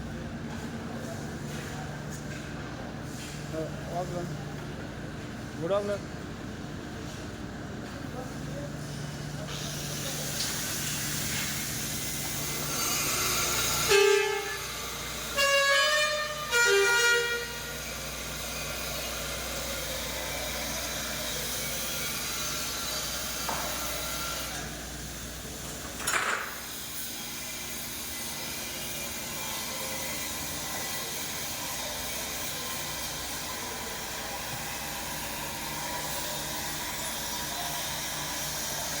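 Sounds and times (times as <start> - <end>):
truck horn honking: 13.8 - 17.7.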